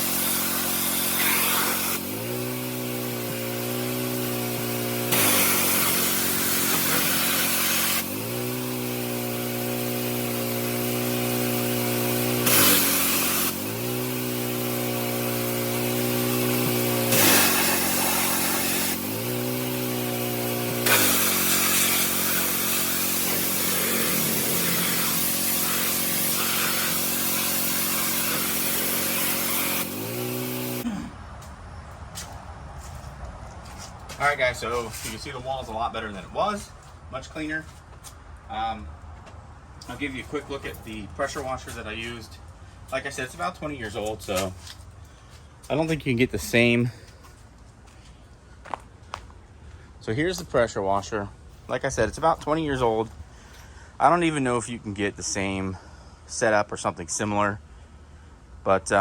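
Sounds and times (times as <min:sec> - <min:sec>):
high-pressure water spray: 0:00.0 - 0:30.8
pressure washer engine running: 0:00.0 - 0:30.9, 0:39.8 - 0:42.3.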